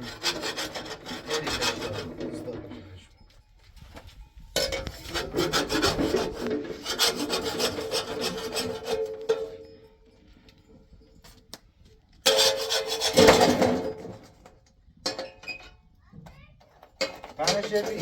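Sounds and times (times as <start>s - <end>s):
rapid rhythmic scraping strokes: 0.0s - 3.0s, 4.6s - 9.5s.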